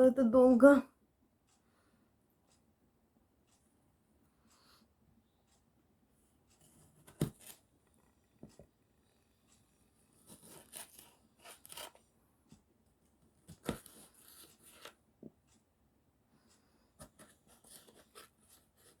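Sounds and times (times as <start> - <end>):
knife slicing tomatoes: 7.0 - 7.6, 10.3 - 12.0.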